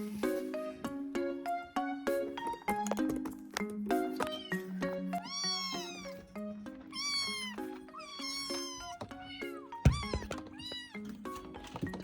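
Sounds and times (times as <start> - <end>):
soft background music: 0.0 - 12.0
kittens meowing: 4.2 - 11.1.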